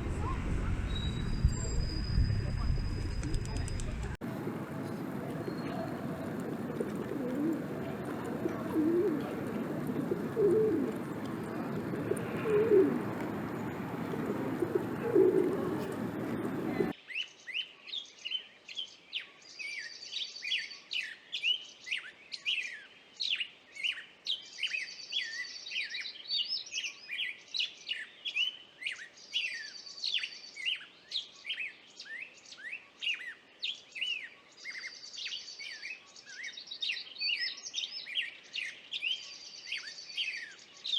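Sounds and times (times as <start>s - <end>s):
songbirds chirping: 0.0s - 40.9s
pigeon cooing: 3.0s - 16.9s.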